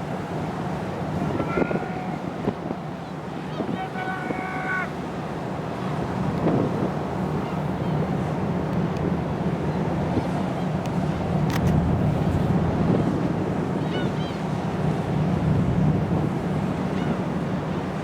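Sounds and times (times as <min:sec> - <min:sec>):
wind on microphone: 0:05.9 - 0:17.7.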